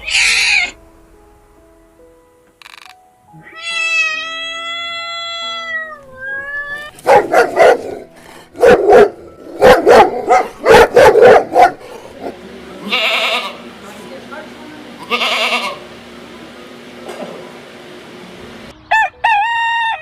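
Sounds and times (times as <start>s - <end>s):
cat meowing: 0.0s - 0.8s, 3.3s - 7.0s
soft background music: 0.0s - 12.8s
dog barking: 7.0s - 8.0s, 8.6s - 11.9s.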